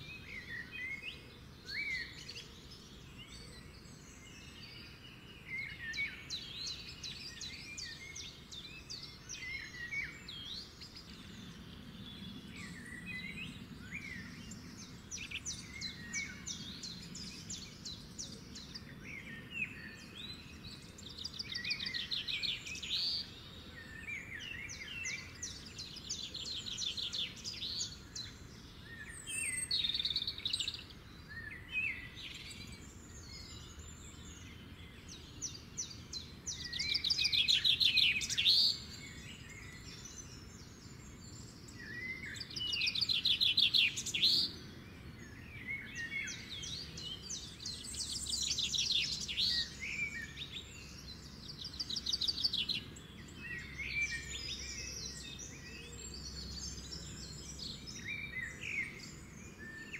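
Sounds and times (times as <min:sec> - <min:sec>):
low background noise: 0:00.0 - 0:59.9
songbird trilling: 0:35.5 - 0:40.4, 0:41.9 - 0:44.6.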